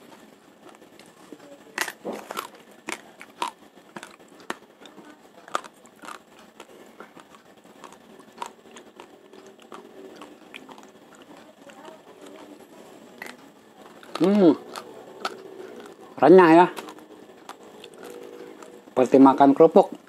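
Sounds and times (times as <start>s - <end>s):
raw rice crunching between teeth: 0.6s - 12.4s, 13.2s - 18.8s.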